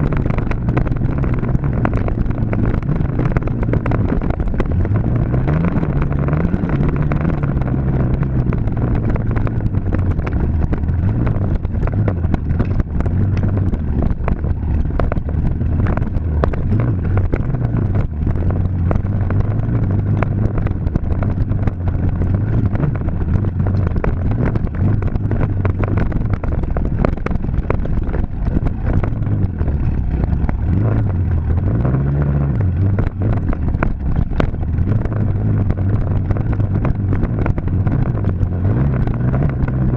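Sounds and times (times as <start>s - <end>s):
knocks and clatter: 0.0s - 39.9s.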